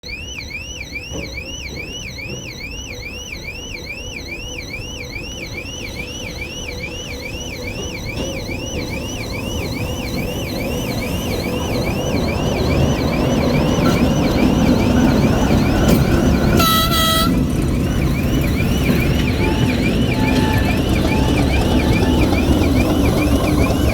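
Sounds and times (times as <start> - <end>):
electronic alarm warbling: 0.0 - 23.9
diesel locomotive engine rumble: 7.4 - 23.9
locomotive horn blast: 13.8 - 22.5.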